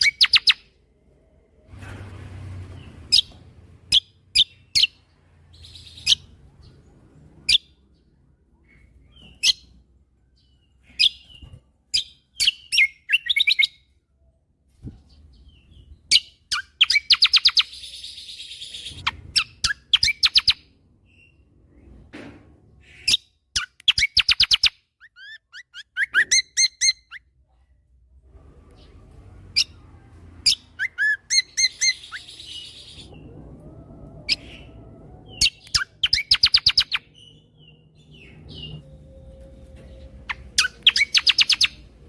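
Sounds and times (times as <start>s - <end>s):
songbird singing high chirps: 34.3s - 41.9s.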